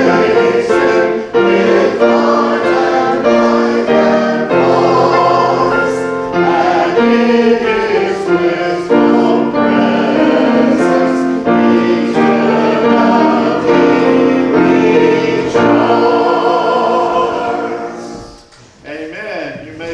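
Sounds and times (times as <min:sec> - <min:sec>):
congregation singing a hymn: 0:00.0 - 0:18.6
instrumental accompaniment: 0:00.0 - 0:18.6.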